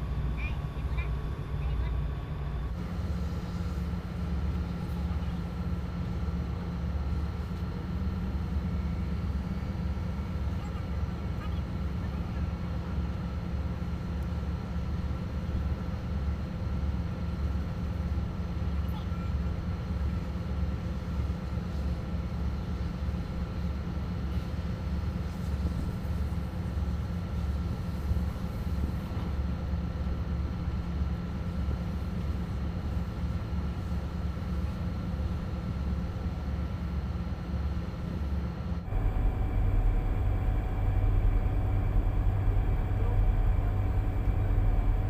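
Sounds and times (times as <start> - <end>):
faint steady whine: 0.0 - 7.2, 24.3 - 45.0
boat engine low rumble: 0.0 - 45.0.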